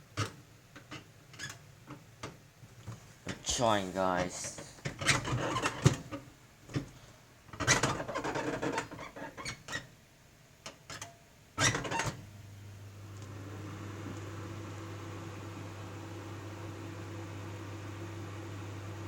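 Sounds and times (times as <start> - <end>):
microwave oven humming: 11.6 - 19.0.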